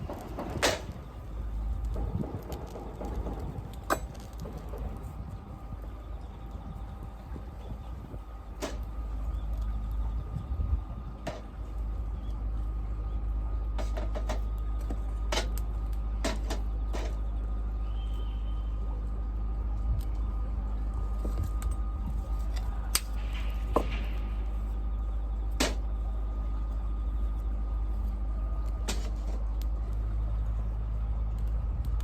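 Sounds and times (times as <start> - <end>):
fire popping: 0.0 - 5.9
wood fire crackling: 0.0 - 6.3
low rumble: 0.0 - 32.0.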